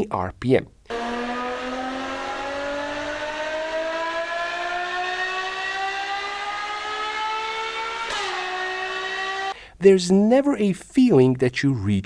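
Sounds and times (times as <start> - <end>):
engine accelerating: 0.9 - 9.6.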